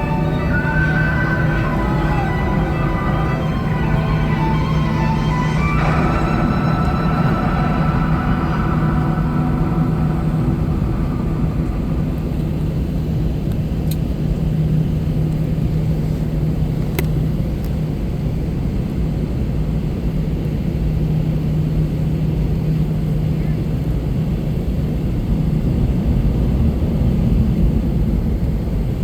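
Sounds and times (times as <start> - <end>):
music: 0.0 - 13.2
airliner cabin drone: 0.0 - 29.0.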